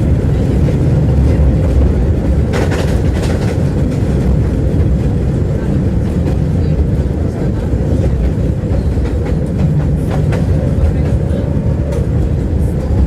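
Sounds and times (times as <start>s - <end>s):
tram rumbling on track: 0.0s - 13.0s
wheels clicking on rails: 0.0s - 13.0s.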